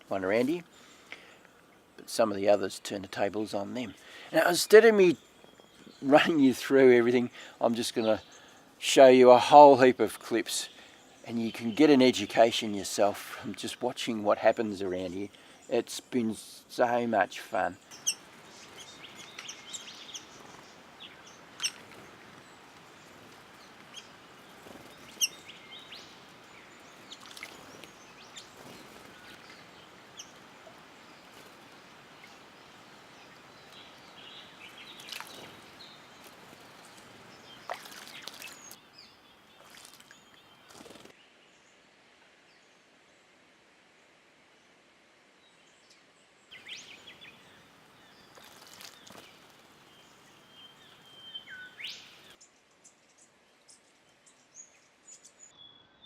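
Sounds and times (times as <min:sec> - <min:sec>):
birds chirping: 0:00.0 - 0:41.7, 0:45.5 - 0:56.0
background hiss: 0:00.0 - 0:56.0.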